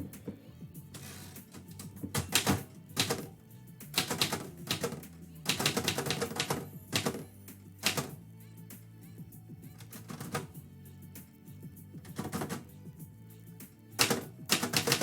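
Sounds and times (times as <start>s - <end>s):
soft background music: 0.0s - 15.0s
typewriter keys clacking: 1.0s - 3.3s, 4.0s - 7.2s, 7.8s - 8.1s, 9.8s - 10.5s, 12.1s - 12.6s, 14.0s - 15.0s.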